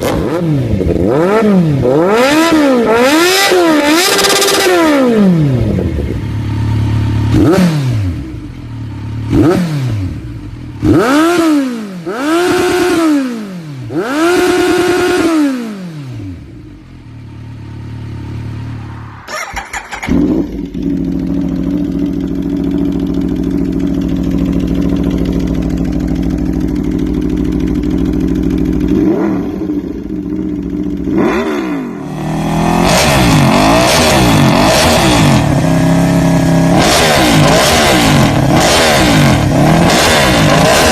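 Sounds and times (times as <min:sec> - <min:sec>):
motorcycle engine revving: 0:00.0 - 0:40.9
motorcycle engine idling: 0:03.9 - 0:11.2, 0:16.2 - 0:32.7.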